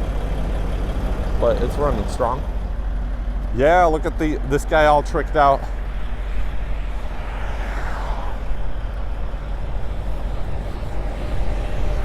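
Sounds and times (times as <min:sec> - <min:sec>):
diesel truck engines rumbling: 0:00.0 - 0:12.0
falling whoosh: 0:05.0 - 0:11.0.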